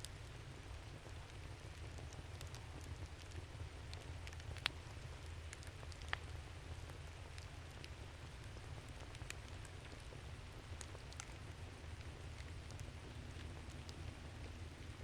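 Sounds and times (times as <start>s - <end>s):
campfire crackling: 0.0s - 15.0s
loud fire snaps: 0.9s - 6.4s.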